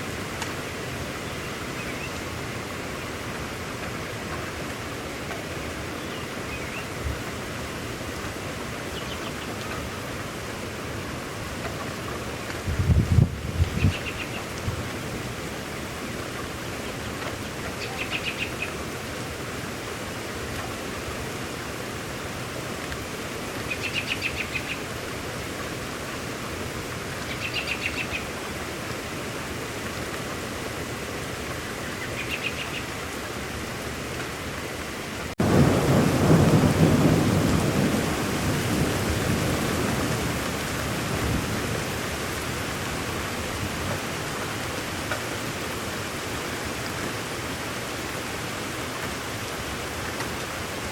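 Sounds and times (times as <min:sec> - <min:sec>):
steady rainfall: 0:00.0 - 0:50.9
thunder rumbling: 0:12.7 - 0:14.8, 0:35.4 - 0:40.3.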